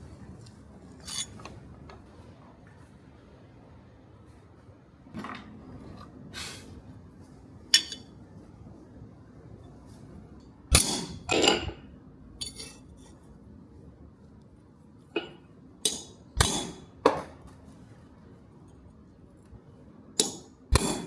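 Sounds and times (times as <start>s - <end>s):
metal-on-metal clinks and knocks: 12.4s - 12.8s.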